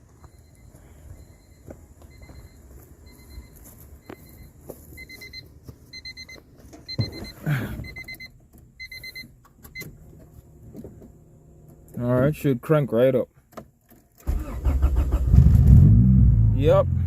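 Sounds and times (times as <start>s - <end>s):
dashboard warning chime beeping: 0.2s - 10.0s.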